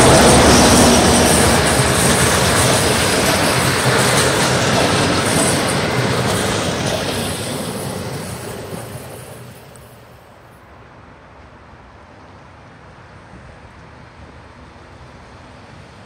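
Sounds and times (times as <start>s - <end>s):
train wheels clattering on track: 0.0s - 10.2s.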